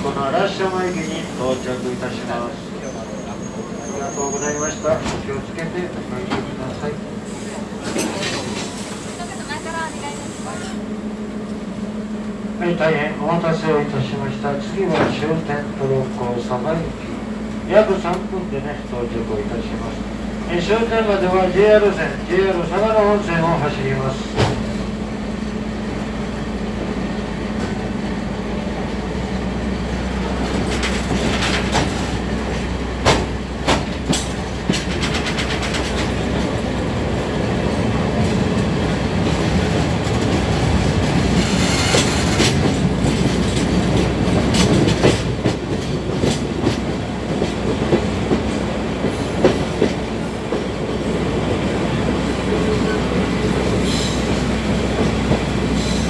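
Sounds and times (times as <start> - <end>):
train rumbling: 0.0 - 56.0
wheels clicking over rail joints: 20.7 - 56.0.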